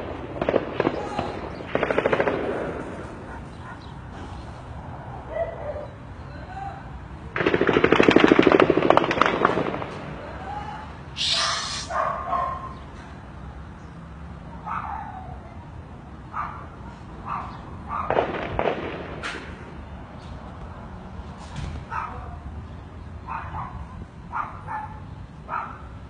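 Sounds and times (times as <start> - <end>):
gunshot crack: 0.0 - 3.0, 18.1 - 19.6
dogs barking: 2.9 - 6.1, 11.2 - 13.0, 14.5 - 15.6, 16.3 - 18.3, 21.8 - 22.4, 23.2 - 26.0.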